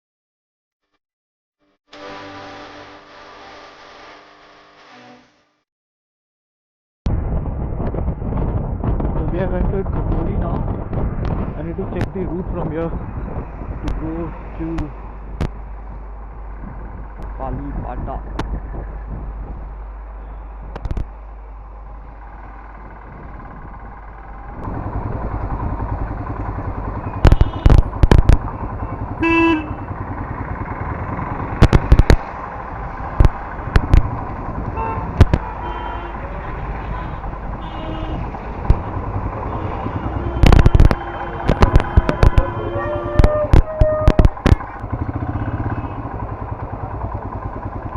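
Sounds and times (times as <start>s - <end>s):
motorcycle engine: 8.3s - 47.9s
loud sharp thumps: 24.6s - 45.0s
vehicle horn honking: 26.8s - 28.0s, 28.6s - 30.3s, 34.6s - 43.5s, 45.0s - 46.4s.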